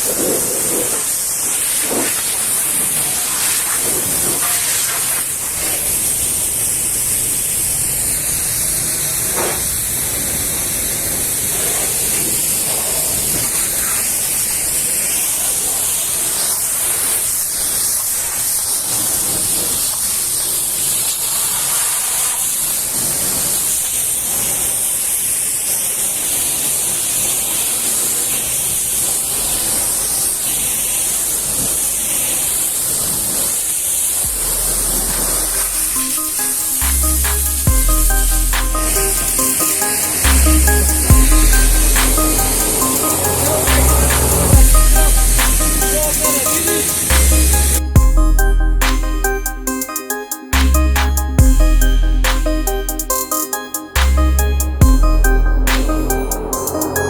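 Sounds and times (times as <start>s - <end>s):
pressure washer spraying water: 0.0s - 22.8s, 33.6s - 48.0s.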